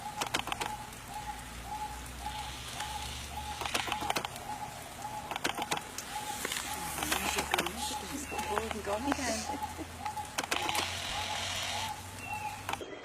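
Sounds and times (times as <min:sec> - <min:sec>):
sharp clicks: 0:00.2 - 0:00.9, 0:03.5 - 0:06.1, 0:07.0 - 0:09.2, 0:10.0 - 0:11.9, 0:12.6 - 0:12.8.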